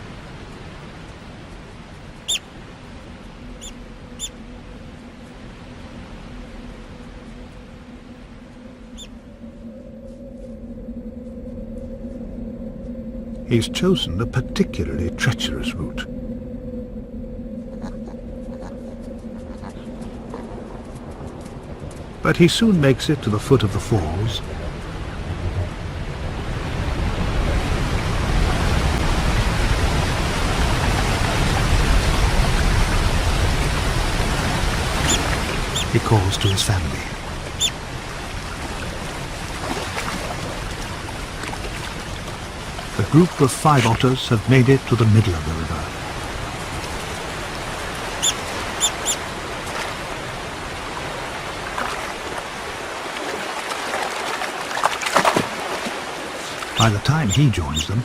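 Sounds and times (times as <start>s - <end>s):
river water rushing: 24.0s - 58.0s
waterfall rushing: 26.3s - 39.6s, 55.4s - 58.0s.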